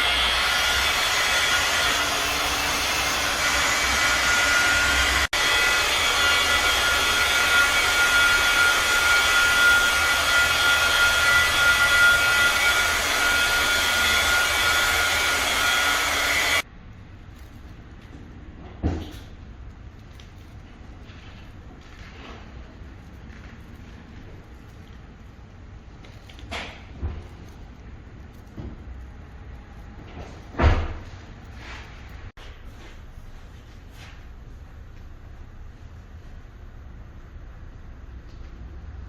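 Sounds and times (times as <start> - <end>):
electric tool motor whirring: 0.0 - 16.6.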